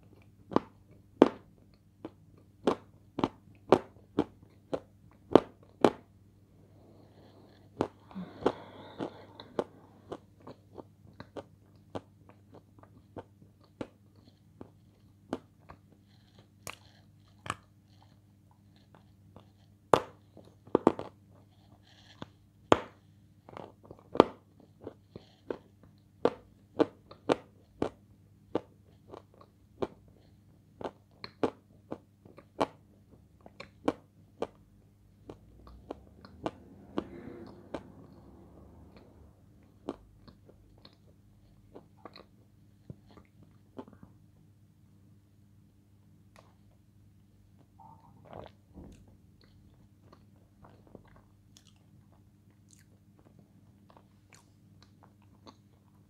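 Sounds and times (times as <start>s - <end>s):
crunchy chewing of food: 0.0s - 6.1s, 6.7s - 44.4s, 46.3s - 46.8s, 47.6s - 56.0s.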